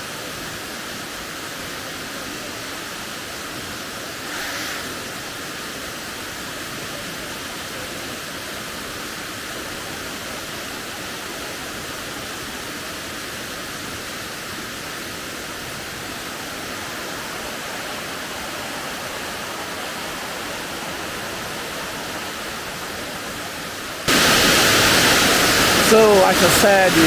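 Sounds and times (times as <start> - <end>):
waterfall rushing: 13.9 - 27.0.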